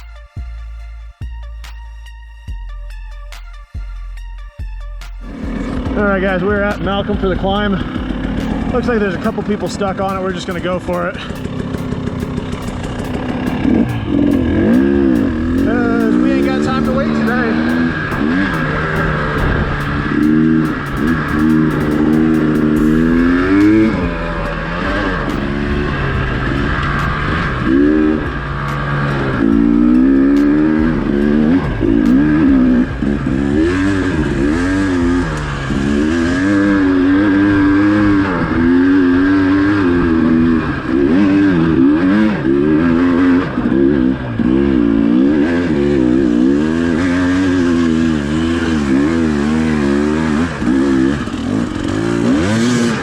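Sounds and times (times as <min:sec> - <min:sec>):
dirt bike engine revving: 0:03.3 - 0:53.0.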